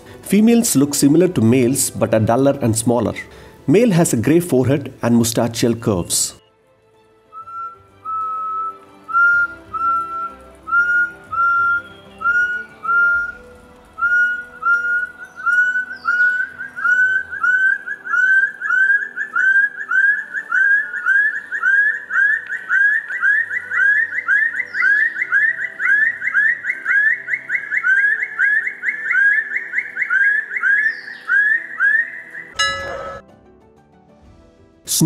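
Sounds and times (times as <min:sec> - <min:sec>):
partridge whistled song: 0:07.3 - 0:33.2.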